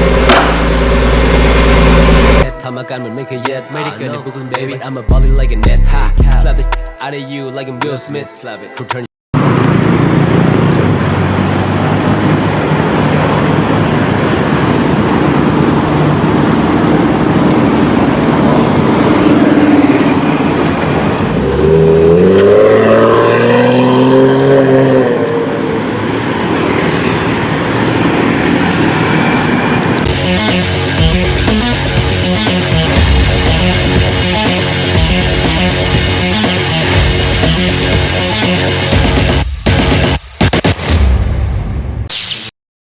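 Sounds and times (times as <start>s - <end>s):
car engine revving: 0.0s - 2.6s, 9.4s - 26.5s, 27.2s - 40.7s.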